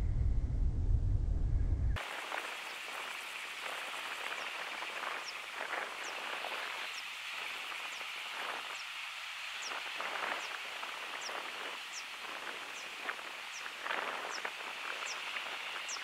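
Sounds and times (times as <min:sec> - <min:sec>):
wind rumbling on microphone: 0:00.0 - 0:16.0
steady outdoor hiss: 0:02.0 - 0:16.0.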